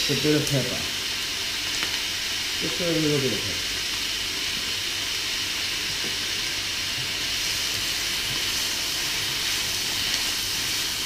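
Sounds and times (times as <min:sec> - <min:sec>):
stir-fry sizzling in a wok: 0:00.0 - 0:11.0.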